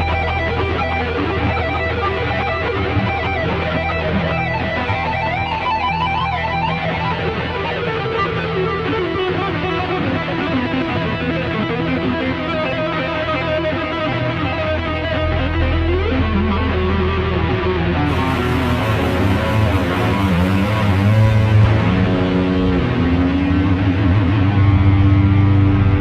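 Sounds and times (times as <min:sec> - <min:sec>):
guitar: 0:00.0 - 0:26.0
sustained bass line: 0:14.8 - 0:26.0
band playing instrumental: 0:18.1 - 0:22.9.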